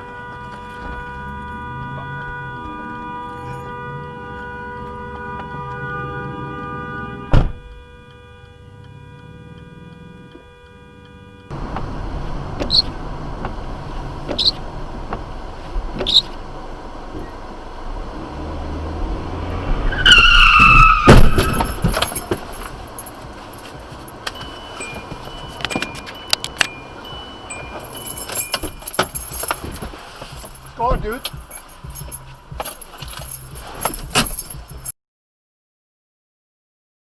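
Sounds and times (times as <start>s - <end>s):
road noise: 0.0s - 34.9s
car crash with heavy bangs: 19.6s - 22.9s
tyre screech: 19.8s - 23.6s
sharp bang: 20.6s - 22.4s.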